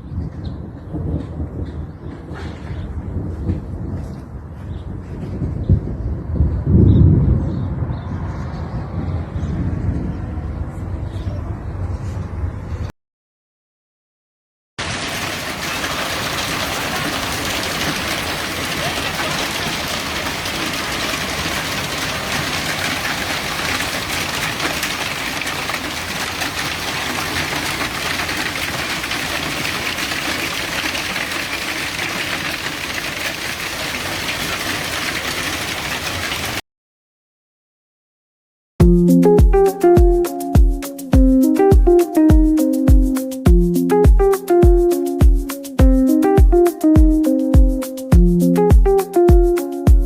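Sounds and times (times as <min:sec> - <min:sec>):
heavy rain hiss: 0:14.8 - 0:36.6.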